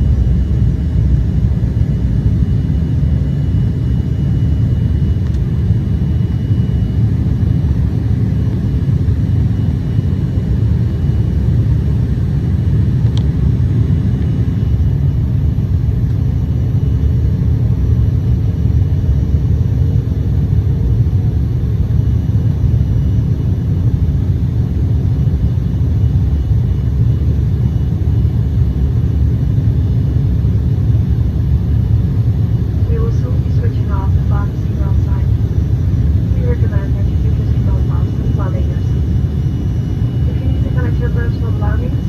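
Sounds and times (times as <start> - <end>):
jet airliner cabin rumble: 0.0 - 42.0
faint steady hum: 30.4 - 42.0.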